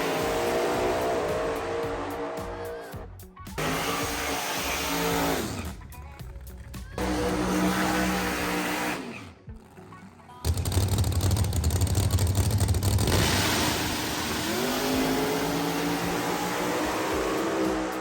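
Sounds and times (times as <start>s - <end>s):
drag race car engines: 0.0s - 18.0s.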